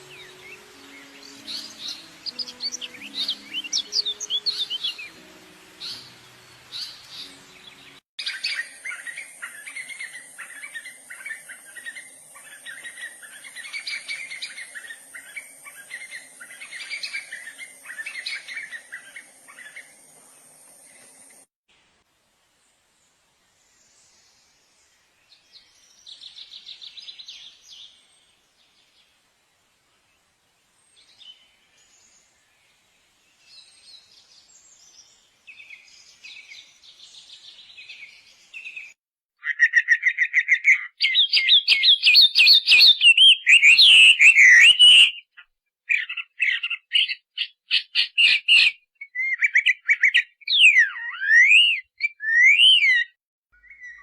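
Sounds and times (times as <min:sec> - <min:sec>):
small bird chattering and trilling: 0:39.4 - 0:54.0.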